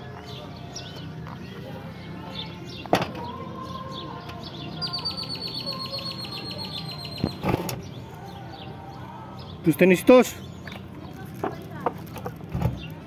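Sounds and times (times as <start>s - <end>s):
market background noise: 0.0s - 13.0s
bird high rapid trill: 4.8s - 7.4s.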